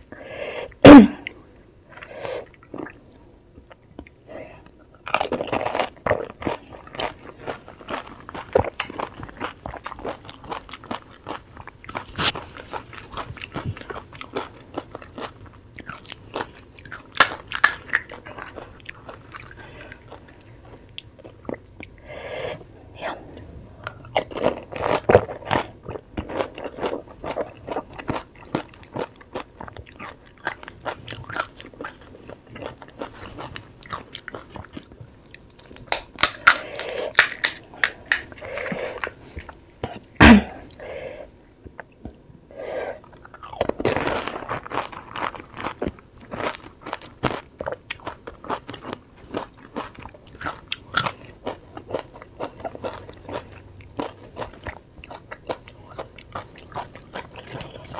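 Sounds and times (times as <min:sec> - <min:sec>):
crisp shells crunching in mouth: 0:05.1 - 0:20.5, 0:23.9 - 0:39.6, 0:43.1 - 0:57.9.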